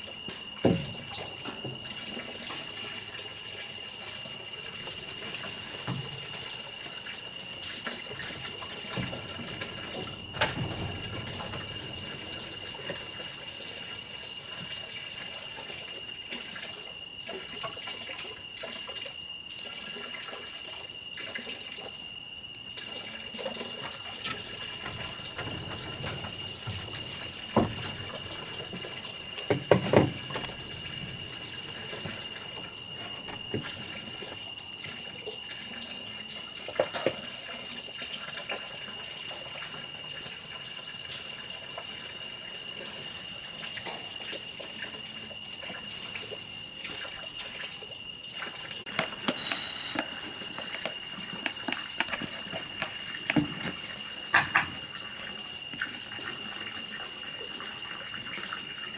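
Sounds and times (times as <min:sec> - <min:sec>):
water running: 0:00.0 - 0:19.0, 0:19.7 - 0:58.9
short knocks: 0:24.6 - 0:33.9.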